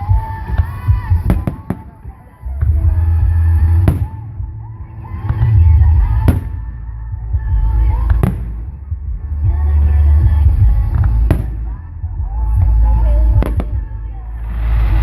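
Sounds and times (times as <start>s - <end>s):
fireworks cracking: 0.0s - 4.4s, 10.9s - 11.8s, 12.6s - 15.0s
fireworks booming: 0.0s - 4.6s, 10.5s - 15.0s.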